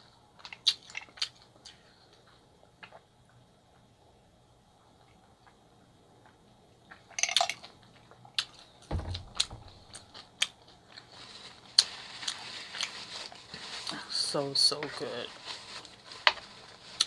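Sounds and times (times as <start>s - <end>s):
low thump: 8.9s - 10.2s.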